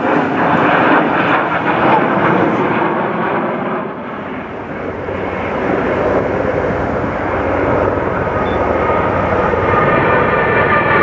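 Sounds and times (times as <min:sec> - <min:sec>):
aircraft engine rushing: 0:00.0 - 0:11.0
faint whine: 0:04.0 - 0:11.0.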